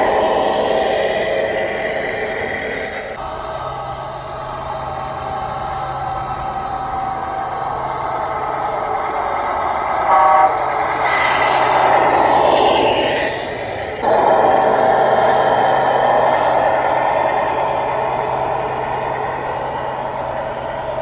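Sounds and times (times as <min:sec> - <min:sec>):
truck engine running: 0:00.0 - 0:21.0
truck horn toot: 0:10.1 - 0:10.7
air brake hiss: 0:11.0 - 0:16.2.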